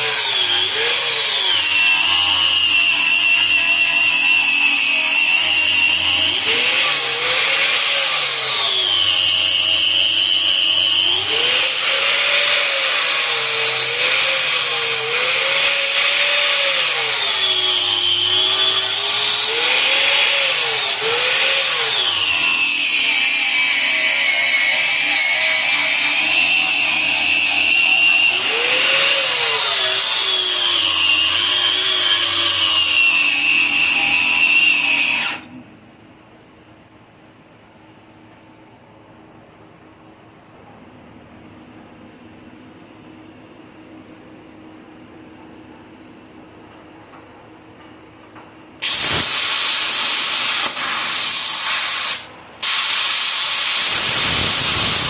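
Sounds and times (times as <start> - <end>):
grinder whining against steel: 0.0 - 35.6, 48.8 - 55.0.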